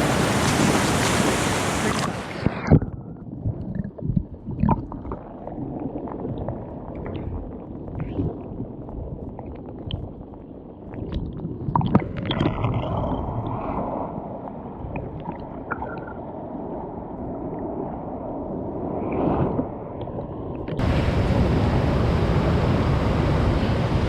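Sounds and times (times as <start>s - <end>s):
rushing stream water: 0.0s - 2.6s, 20.8s - 24.0s
wind on microphone: 0.0s - 10.1s, 11.0s - 24.0s.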